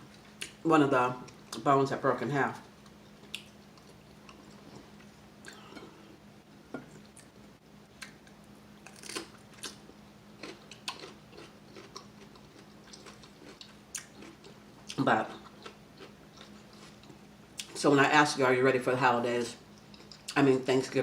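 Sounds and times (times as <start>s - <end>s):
faint low hum: 0.0s - 21.0s
chewing crispy food: 2.6s - 5.7s, 8.0s - 17.8s, 19.6s - 20.4s.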